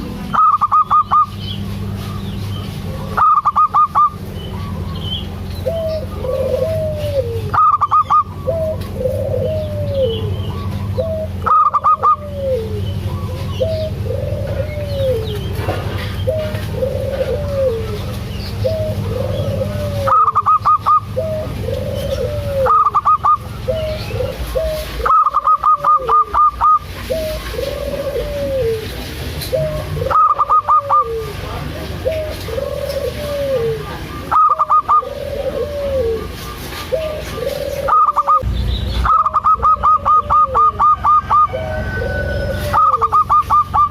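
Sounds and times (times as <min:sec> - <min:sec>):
dove cooing: 0:00.0 - 0:43.9
steady low hum: 0:00.0 - 0:43.9
high rapid pulsed bird call: 0:00.3 - 0:08.7, 0:09.5 - 0:14.0, 0:20.0 - 0:21.5, 0:22.1 - 0:24.2, 0:25.0 - 0:26.9, 0:34.2 - 0:35.1, 0:37.9 - 0:41.5, 0:42.7 - 0:43.9.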